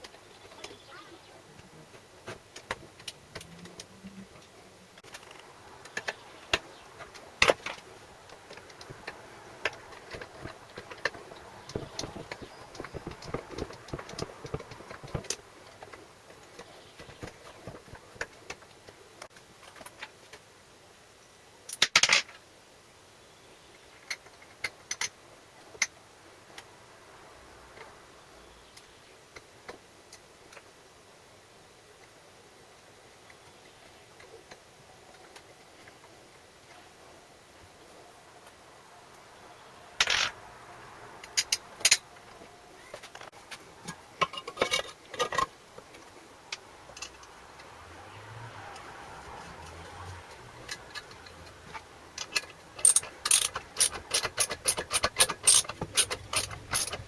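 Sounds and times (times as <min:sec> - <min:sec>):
tools clattering on workbench: 0:44.2 - 0:45.5, 0:50.7 - 0:57.0.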